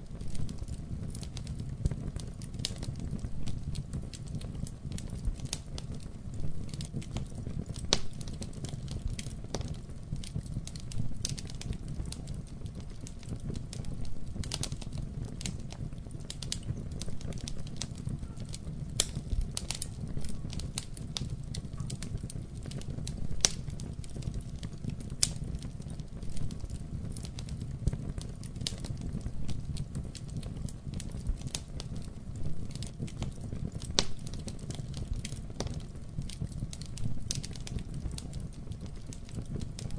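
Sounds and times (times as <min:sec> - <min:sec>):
fire crackling and popping: 0:00.0 - 0:39.9
wood fire rumbling: 0:00.0 - 0:39.9.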